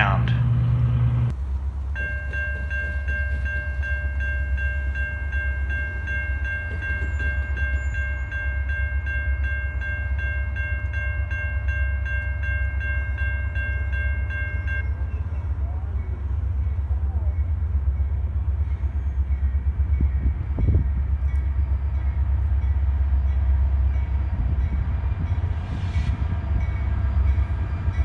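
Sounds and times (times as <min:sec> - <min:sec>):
train passing rumble: 0:00.0 - 0:28.0.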